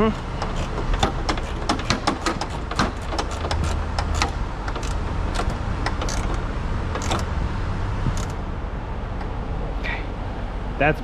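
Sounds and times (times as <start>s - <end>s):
hand ratchet clicking: 0.0s - 6.4s, 7.0s - 7.3s
steady low hum: 0.0s - 11.0s.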